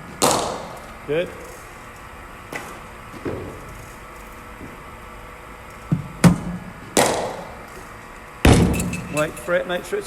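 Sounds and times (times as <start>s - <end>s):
cricket bat striking ball: 0.2s - 0.8s, 6.2s - 7.6s.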